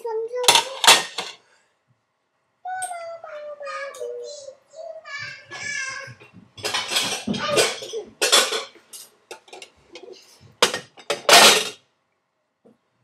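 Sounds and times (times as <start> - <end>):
dishes and cutlery clattering: 0.4 - 1.4, 6.6 - 11.8.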